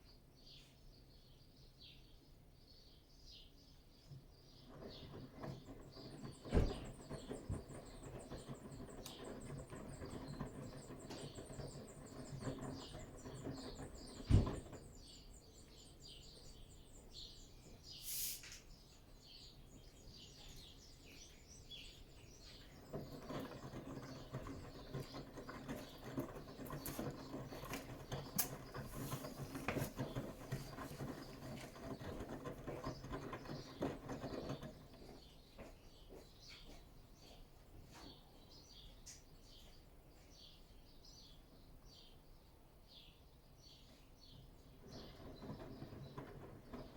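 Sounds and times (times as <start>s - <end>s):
washing machine drum tumbling laundry: 4.6s - 16.8s, 22.0s - 35.3s, 44.6s - 46.9s
thump in washing machine: 6.5s - 7.0s, 14.2s - 14.8s
brief hiss: 17.9s - 18.7s.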